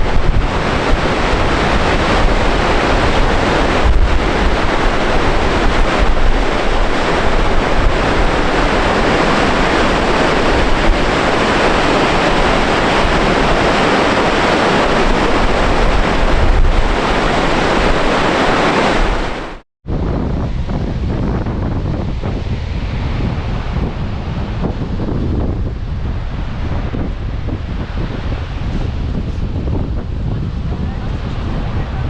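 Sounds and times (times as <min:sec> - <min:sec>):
waterfall rushing: 0:00.0 - 0:19.6
wind buffeting microphone: 0:00.0 - 0:32.0.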